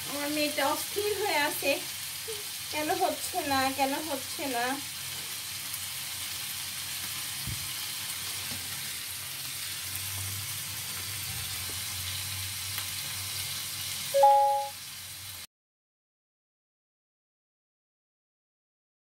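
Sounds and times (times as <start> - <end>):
skewers sizzling in a pan: 0.0 - 15.5
two-tone beep: 14.2 - 14.7.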